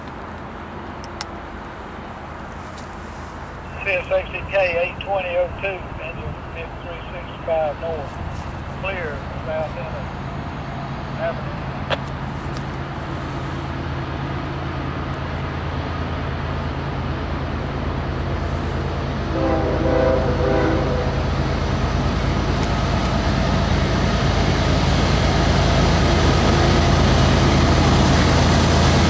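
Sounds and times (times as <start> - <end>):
locomotive engine drone: 0.0 - 29.0
train horn blast: 18.5 - 23.2.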